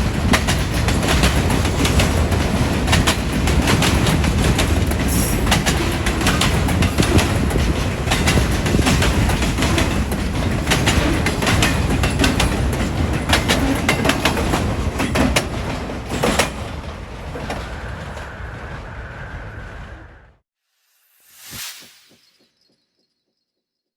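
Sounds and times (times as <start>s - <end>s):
train wheels clattering over rails: 0.0s - 18.4s
heavy train rumble: 0.0s - 20.4s.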